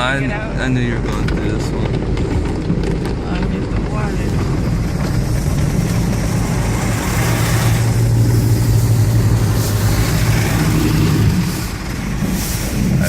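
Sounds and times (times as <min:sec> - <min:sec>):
car wash low hum: 0:00.0 - 0:13.0
spray hissing on car: 0:05.2 - 0:13.0.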